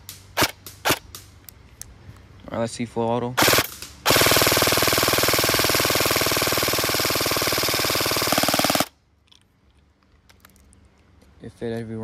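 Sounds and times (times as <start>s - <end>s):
airsoft gun full-auto burst: 3.4s - 8.9s.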